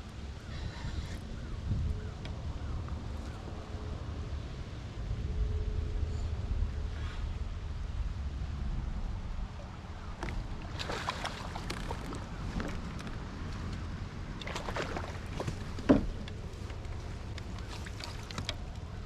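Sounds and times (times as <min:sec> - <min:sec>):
wind rumble on microphone: 0:00.0 - 0:19.0
kayak gear knocking and clicking: 0:15.3 - 0:18.9.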